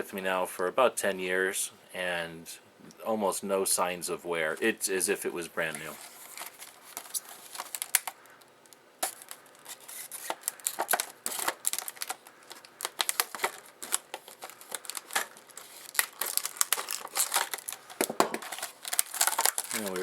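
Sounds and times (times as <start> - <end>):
plastic packaging cracking and snapping: 6.3 - 20.0.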